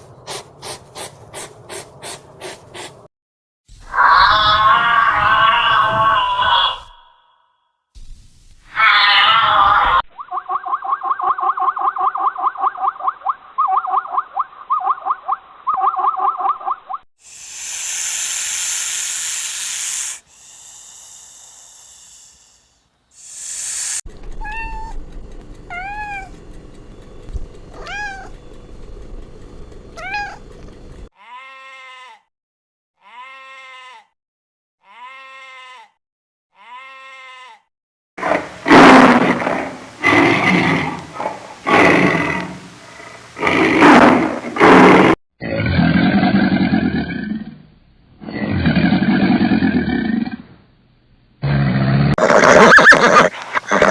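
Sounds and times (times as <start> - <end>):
cat hissing: 0.3 - 3.1, 17.2 - 24.0, 52.2 - 53.9
loud harsh animal call: 3.9 - 7.5, 8.7 - 10.5, 17.2 - 24.0, 52.2 - 53.9
cat pulsing call: 23.2 - 25.0, 25.6 - 26.4, 27.7 - 28.4, 30.0 - 30.5
cat meowing: 24.4 - 25.0, 25.7 - 26.3, 27.8 - 28.4, 30.0 - 30.4
short rising and falling cries: 52.2 - 53.9.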